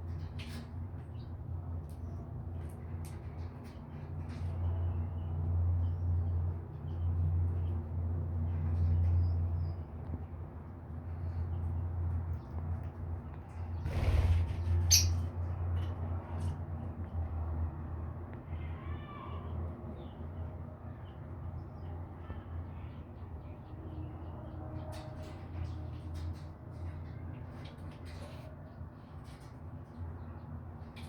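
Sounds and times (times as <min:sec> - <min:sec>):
cockatiel chirps: 0:14.9 - 0:15.2.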